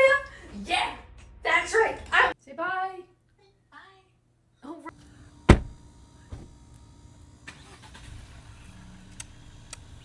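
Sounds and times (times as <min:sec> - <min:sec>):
car engine rumbling: 0:05.5 - 0:06.0
car door shutting: 0:05.5 - 0:06.5.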